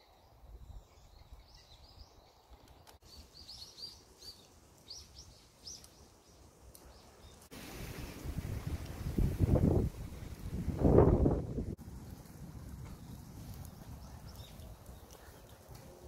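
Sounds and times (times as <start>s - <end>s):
small birds chirping: 0.1s - 7.5s, 12.9s - 16.0s
wind rumble: 7.6s - 16.0s.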